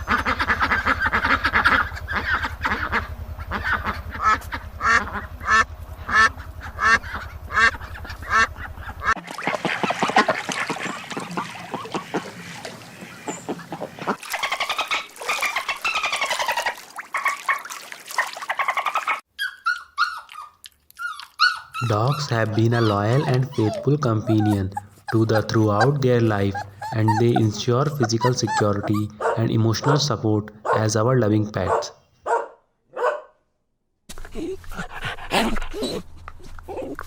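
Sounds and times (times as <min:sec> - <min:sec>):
steady low hum: 0:00.0 - 0:14.2, 0:21.7 - 0:31.9
ducks and geese calling: 0:00.0 - 0:19.8, 0:21.4 - 0:31.0.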